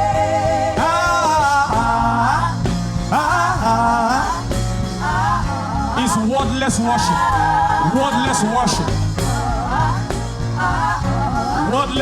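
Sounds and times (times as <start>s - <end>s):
band accompaniment: 0.0s - 12.0s
wordless singing melody: 0.0s - 12.0s.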